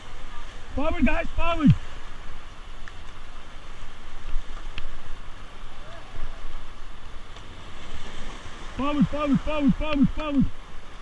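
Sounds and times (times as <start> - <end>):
river water rushing and splashing: 0.0 - 11.0.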